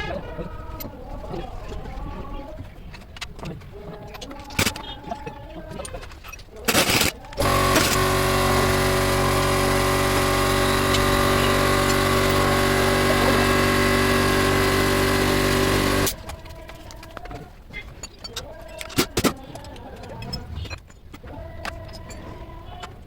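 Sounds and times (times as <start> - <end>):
motor humming: 6.8 - 16.4.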